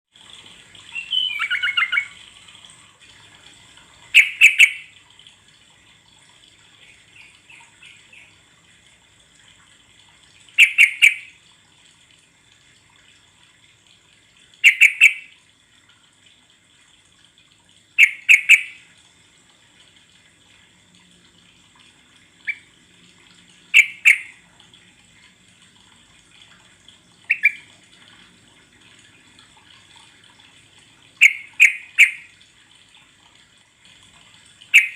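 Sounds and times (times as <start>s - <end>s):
bulbul calling: 0.9s - 2.2s, 4.2s - 4.9s, 10.6s - 11.3s, 14.6s - 15.3s, 18.0s - 18.8s, 23.7s - 24.3s, 27.3s - 27.7s, 31.2s - 32.3s.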